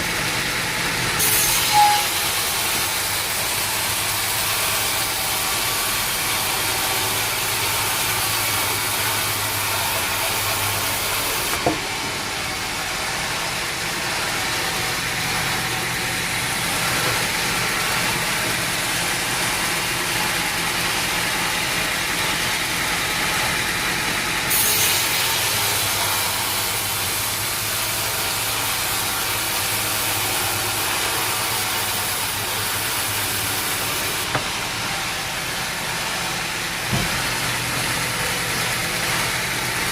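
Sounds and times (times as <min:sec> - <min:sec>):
sawmill machinery running: 0:00.0 - 0:39.9
short sharp knock: 0:36.9 - 0:37.2.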